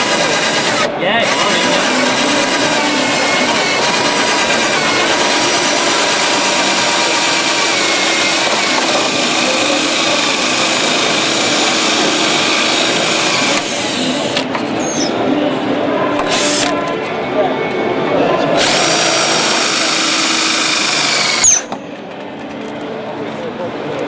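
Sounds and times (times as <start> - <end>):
power sander grinding car panels: 1.3 - 14.0.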